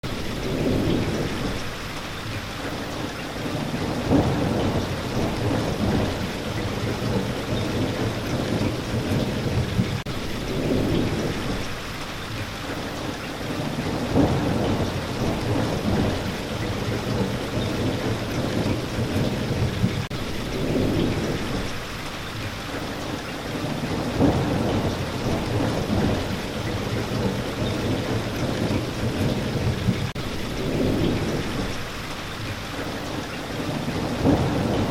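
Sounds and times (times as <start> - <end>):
thunder rumbling: 0.0 - 11.9, 13.0 - 21.9, 23.4 - 34.9
steady rain: 0.0 - 34.9.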